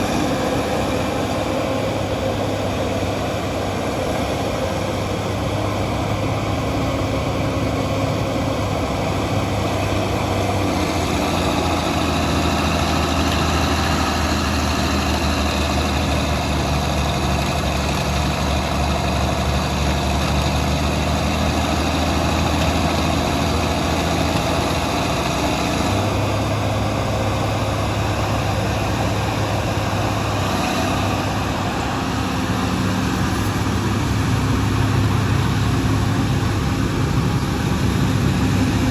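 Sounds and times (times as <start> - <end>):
bulldozer diesel engines running: 0.0 - 38.9.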